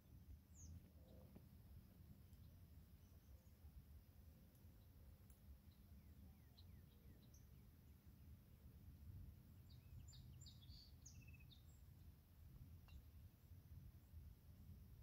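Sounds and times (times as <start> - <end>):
faint bird chirps: 0.0 - 1.6, 2.2 - 7.9, 9.5 - 13.2.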